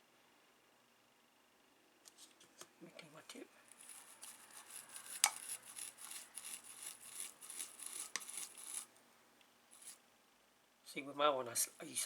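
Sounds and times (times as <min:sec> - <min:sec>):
soldering iron scratching in tip cleaner: 0:03.7 - 0:08.9, 0:09.8 - 0:10.0.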